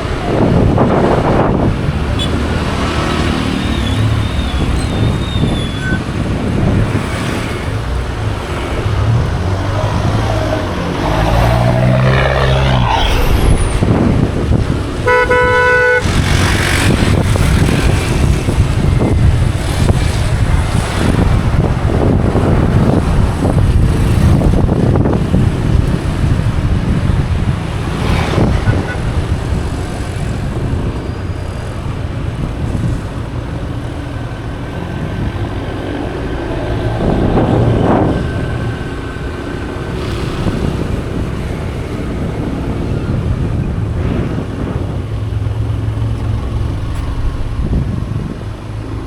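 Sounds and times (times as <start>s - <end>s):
wind on microphone: 0.0s - 49.0s
vehicle horn: 15.0s - 16.2s, 28.6s - 29.1s.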